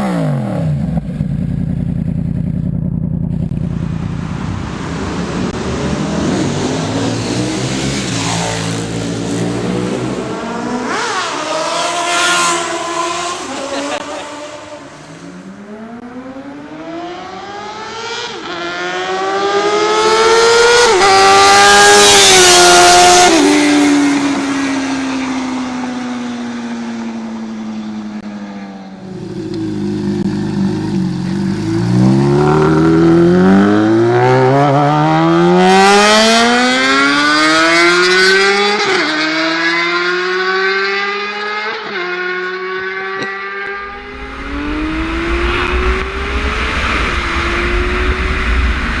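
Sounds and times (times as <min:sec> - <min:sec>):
motorcycle engine revving through gears: 0:00.0 - 0:26.2, 0:29.0 - 0:49.0.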